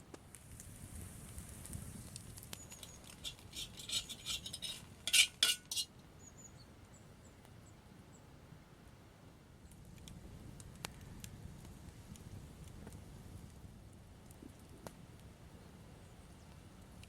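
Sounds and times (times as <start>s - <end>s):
metal utensil scraping cookware: 2.8s - 5.9s.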